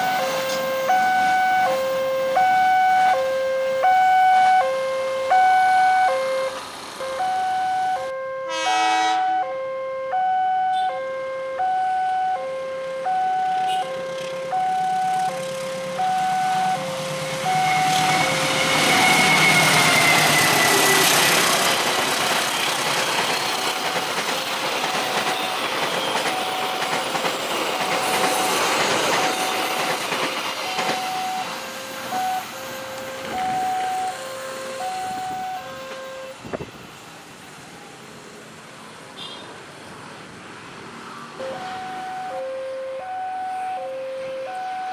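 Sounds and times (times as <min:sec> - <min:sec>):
train rumble and wheel noise: 0:00.0 - 0:09.3, 0:12.8 - 0:39.0
level crossing alarm two tones: 0:00.0 - 0:21.1, 0:30.6 - 0:36.4, 0:41.4 - 0:44.9
short horn blast: 0:08.2 - 0:09.5.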